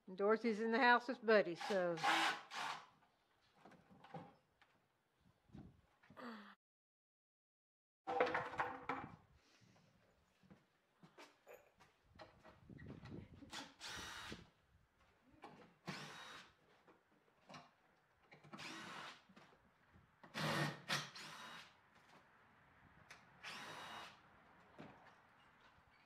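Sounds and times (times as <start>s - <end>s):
distant power drill bursts: 23.4s - 24.2s.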